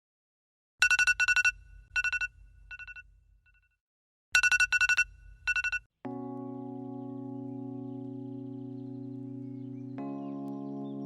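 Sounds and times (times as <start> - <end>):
electronic phone ringtone: 0.8 - 3.0, 4.4 - 5.9.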